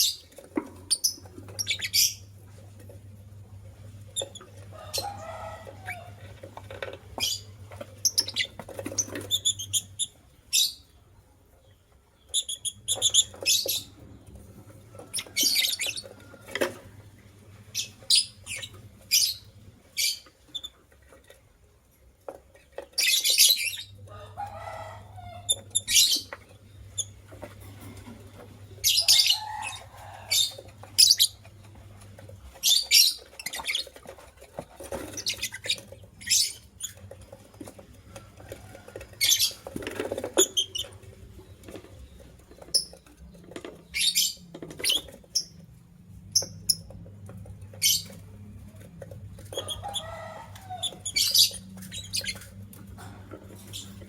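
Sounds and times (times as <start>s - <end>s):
lovebirds chirping: 7.1s - 11.0s, 49.5s - 52.6s.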